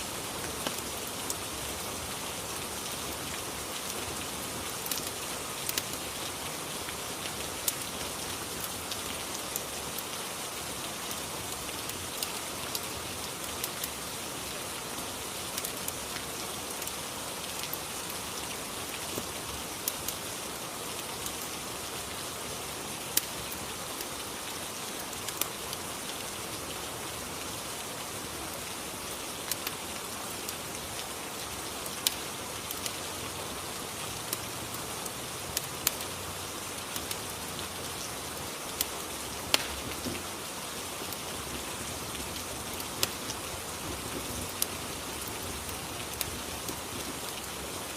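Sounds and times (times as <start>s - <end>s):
steady rain: 0.0s - 47.9s
fireplace crackling: 0.4s - 1.1s, 4.8s - 10.1s, 38.7s - 40.4s, 44.6s - 46.8s.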